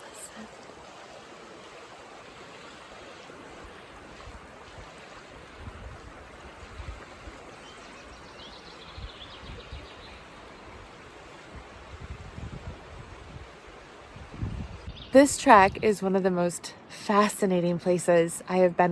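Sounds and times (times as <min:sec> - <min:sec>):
stream flowing: 0:00.0 - 0:18.9
wind rumble on microphone: 0:03.1 - 0:16.1
bird chirping: 0:07.5 - 0:10.6.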